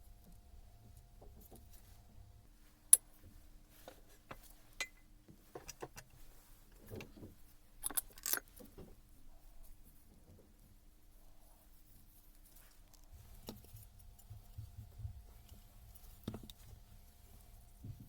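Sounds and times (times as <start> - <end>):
metal tools clicking and clinking: 7.8 - 8.6.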